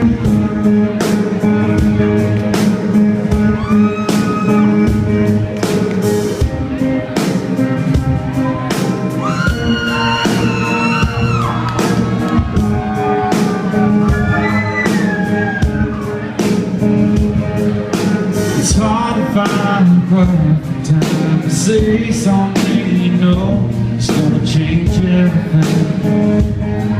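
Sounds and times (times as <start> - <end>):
country rock band playing: 0.0 - 26.9
crowd whooping: 3.3 - 5.2, 8.2 - 16.6.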